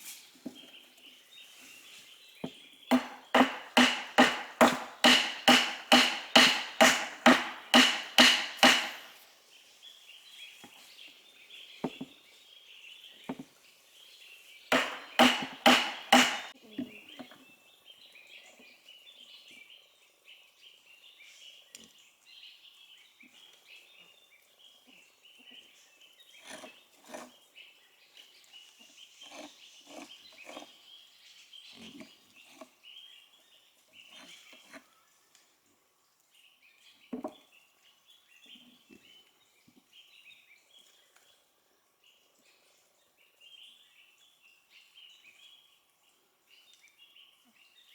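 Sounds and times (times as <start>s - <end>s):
hand tool striking wood: 2.9s - 9.2s, 14.7s - 16.6s.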